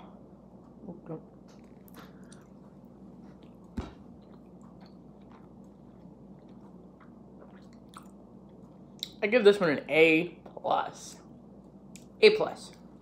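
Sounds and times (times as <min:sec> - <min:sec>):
faint steady hum: 0:00.0 - 0:13.0
person chewing: 0:01.8 - 0:09.2.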